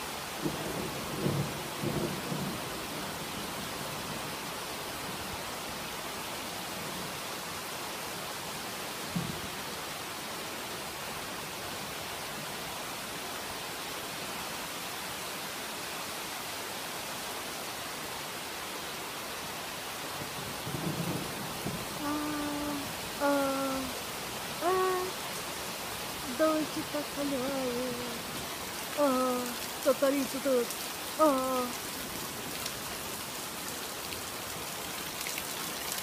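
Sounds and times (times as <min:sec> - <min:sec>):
heavy rain hissing: 0:00.0 - 0:36.0
person singing long notes: 0:22.0 - 0:24.0, 0:24.6 - 0:25.2, 0:26.3 - 0:28.2, 0:29.0 - 0:29.6, 0:31.2 - 0:31.8.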